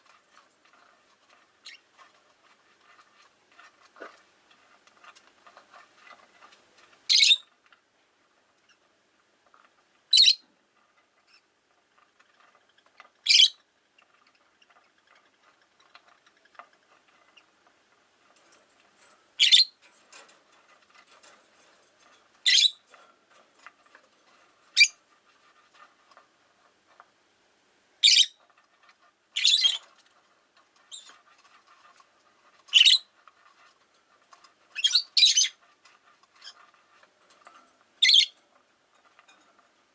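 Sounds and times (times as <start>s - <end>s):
faint scratchy background noise: 0.0s - 39.9s
lovebird shrill chirps: 7.1s - 7.5s, 10.1s - 10.4s, 13.2s - 13.6s, 19.4s - 19.8s, 22.4s - 22.8s, 24.8s - 25.0s, 28.0s - 28.4s, 29.4s - 29.8s, 32.7s - 33.0s, 34.8s - 35.6s, 38.0s - 38.4s.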